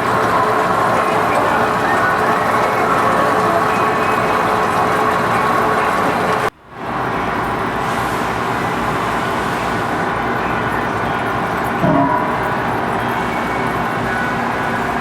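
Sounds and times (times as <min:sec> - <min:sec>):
lathe cutting machine noise: 0:00.0 - 0:06.5
low machine hum: 0:11.8 - 0:14.0.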